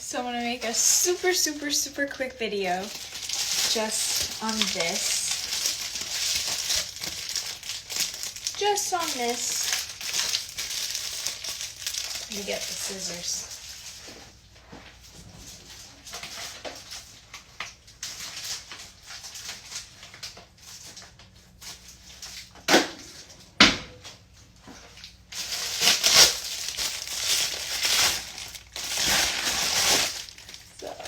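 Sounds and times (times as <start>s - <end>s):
packaging rustling and crinkling: 2.7s - 14.2s, 15.5s - 22.5s, 24.9s - 31.0s
scissors cutting packaging: 2.9s - 12.4s, 25.4s - 30.6s.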